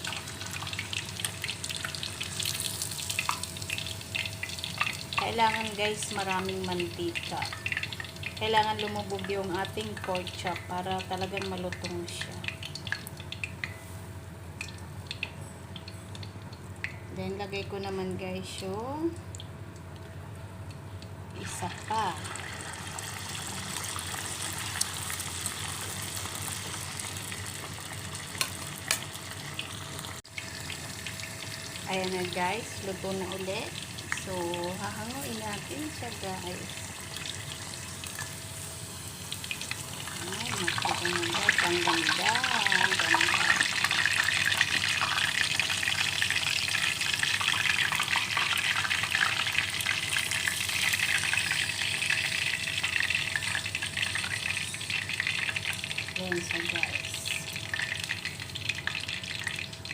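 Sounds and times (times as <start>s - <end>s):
meat sizzling in hot oil: 0.0s - 17.0s, 21.4s - 59.9s.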